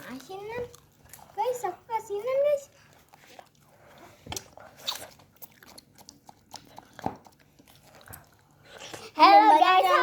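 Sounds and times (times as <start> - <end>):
person crunching and chewing: 3.0 - 8.6.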